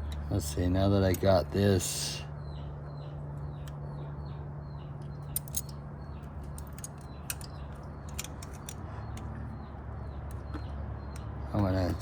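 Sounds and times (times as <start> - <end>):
birds chirping faintly: 0.0 - 12.0
metallic clicks of hose clamps: 5.3 - 5.8, 6.4 - 9.3.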